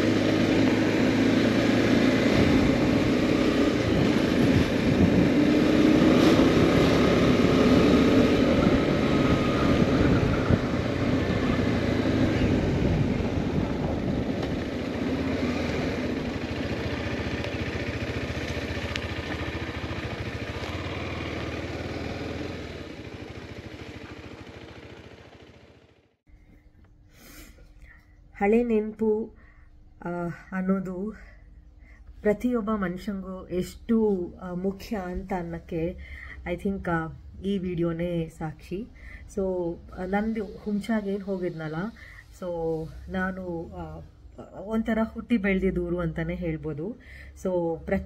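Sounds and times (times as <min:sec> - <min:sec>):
motorcycle engine: 0:00.0 - 0:26.2
road noise: 0:00.0 - 0:26.6, 0:30.8 - 0:48.0.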